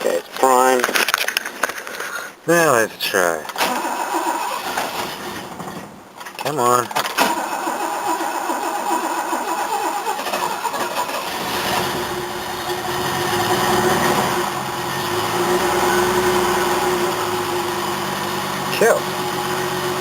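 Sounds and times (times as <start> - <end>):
car starter cranking: 3.5 - 20.0
car engine running roughly: 7.2 - 20.0.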